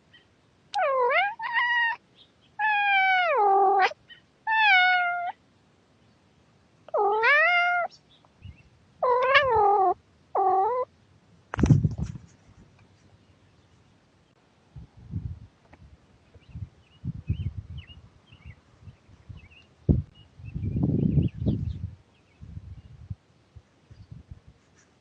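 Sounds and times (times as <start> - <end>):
cat meowing: 0.8 - 2.0, 2.6 - 5.4, 6.9 - 7.9, 9.0 - 10.9.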